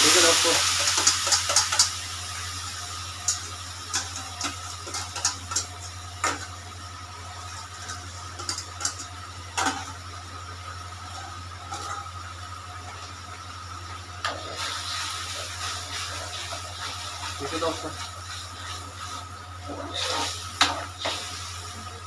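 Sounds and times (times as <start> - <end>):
utensils clinking against cookware: 0.0 - 2.0, 3.2 - 6.5.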